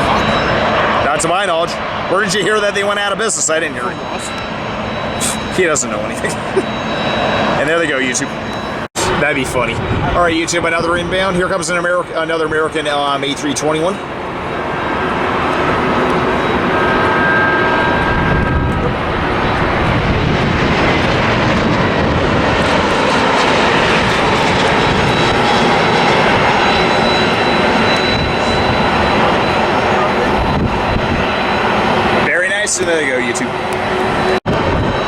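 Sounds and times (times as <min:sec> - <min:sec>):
faint engine whine: 0:00.0 - 0:35.0
jet airliner passing close: 0:00.0 - 0:35.0.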